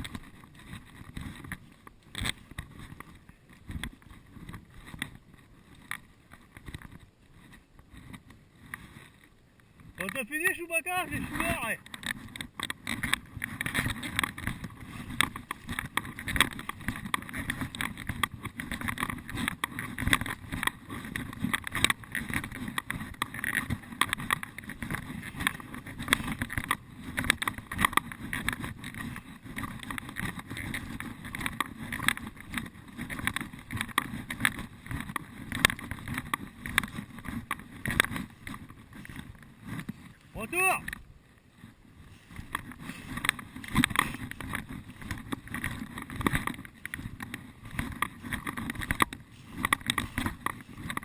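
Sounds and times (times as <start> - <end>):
footsteps crunching through dry litter: 41.6 - 51.0.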